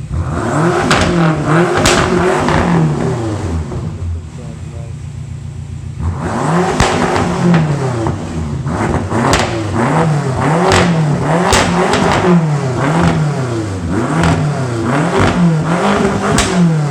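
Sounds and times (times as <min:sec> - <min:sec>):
car engine revving: 0:00.0 - 0:16.9
exhaust pops and cracks: 0:00.8 - 0:03.0, 0:06.6 - 0:09.8, 0:10.6 - 0:13.3, 0:14.2 - 0:14.5, 0:15.1 - 0:16.9.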